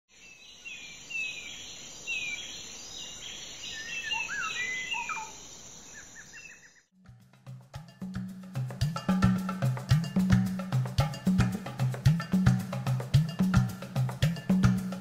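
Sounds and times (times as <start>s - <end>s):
birds singing: 0.1s - 6.9s.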